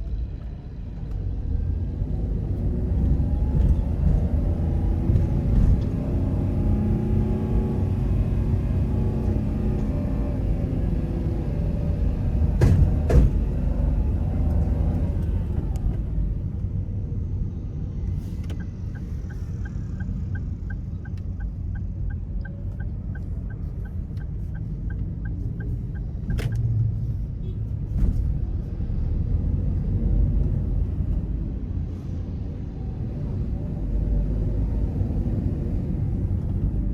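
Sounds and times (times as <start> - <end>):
car engine and road rumble: 0.0 - 36.9
turn signal ticking: 18.4 - 27.0.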